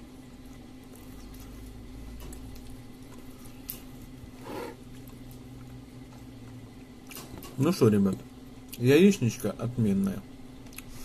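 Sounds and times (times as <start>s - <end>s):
steady low hum: 0.0s - 11.0s
person quietly chewing: 0.2s - 7.2s, 10.6s - 11.0s.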